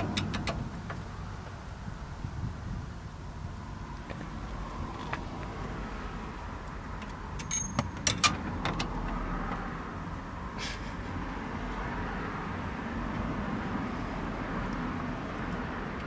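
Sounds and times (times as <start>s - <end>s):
metallic clicks and clinks: 7.4s - 8.4s.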